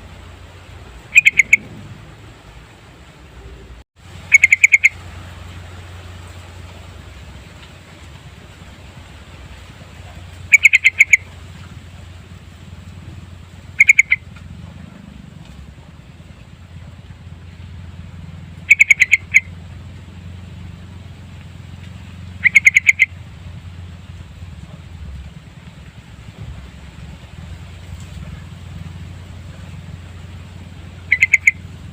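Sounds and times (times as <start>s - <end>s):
steady low hum: 0.0s - 31.9s
bird calling: 1.0s - 2.2s, 3.3s - 5.2s, 9.6s - 15.5s, 18.4s - 24.0s, 27.9s - 31.9s.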